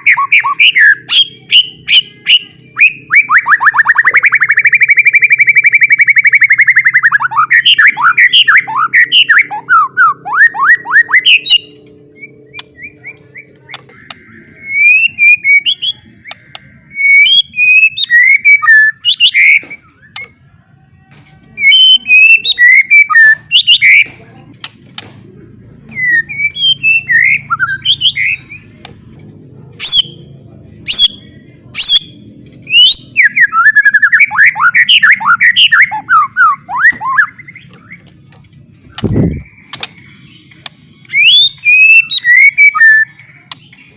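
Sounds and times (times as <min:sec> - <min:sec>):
bird chirps and whistles: 0:00.0 - 0:20.3, 0:21.6 - 0:24.1, 0:25.9 - 0:28.7, 0:30.9 - 0:38.0, 0:41.1 - 0:43.2
bird clicks: 0:37.7 - 0:41.2.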